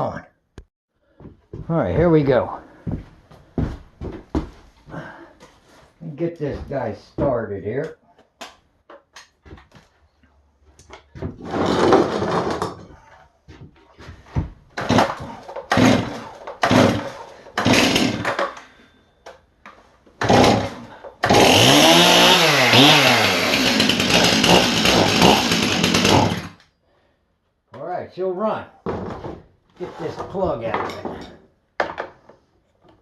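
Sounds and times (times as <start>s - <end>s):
chainsaw engine revving: 11.4s - 12.7s, 14.8s - 18.6s, 20.2s - 26.6s
chainsaw pull-start cord: 11.4s - 12.8s, 14.8s - 18.7s, 20.2s - 26.6s.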